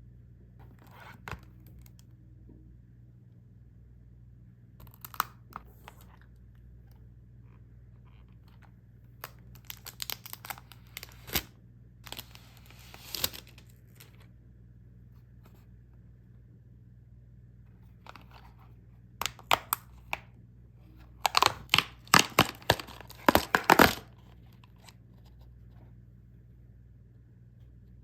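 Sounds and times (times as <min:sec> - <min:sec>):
packaging crinkling: 0:09.2 - 0:14.2, 0:19.2 - 0:20.2, 0:21.2 - 0:24.2
packaging tearing: 0:09.5 - 0:14.1, 0:21.2 - 0:24.2.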